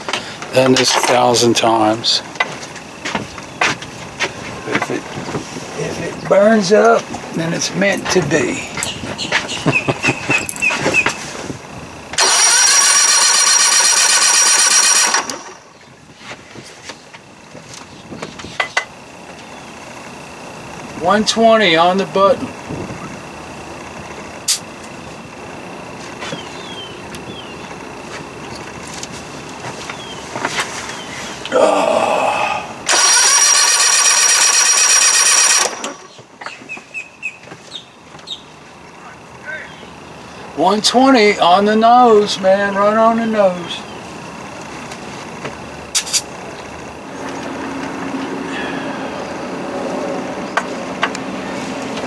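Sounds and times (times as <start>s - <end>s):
electric starter cranking engine: 12.1s - 15.8s, 32.9s - 36.2s.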